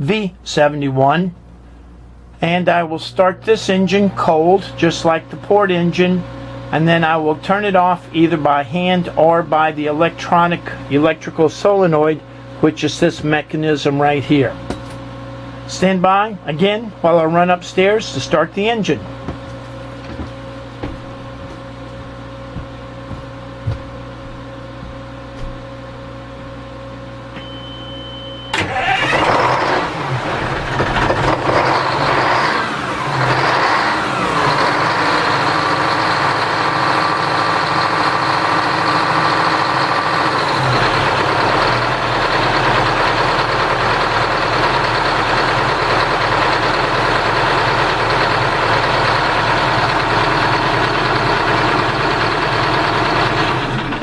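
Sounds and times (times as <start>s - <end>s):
brief high tone: 27.4s - 28.6s
diesel engine starting and idling: 28.5s - 54.0s.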